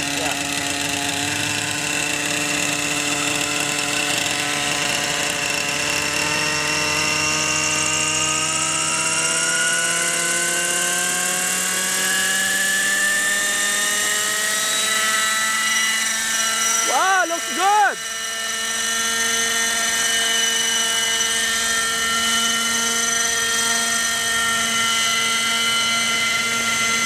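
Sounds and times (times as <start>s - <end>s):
model helicopter engine running: 0.0s - 27.0s.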